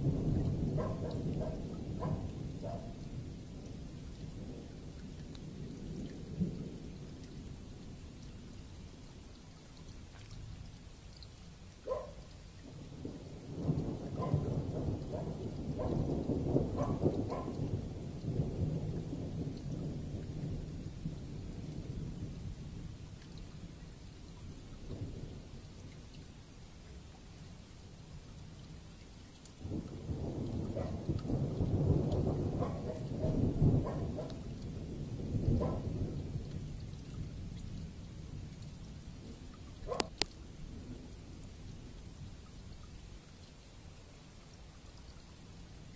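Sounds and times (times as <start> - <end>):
thunder rumbling: 0.0 - 4.8, 12.7 - 22.9, 29.6 - 38.4
steady rain: 0.0 - 45.9.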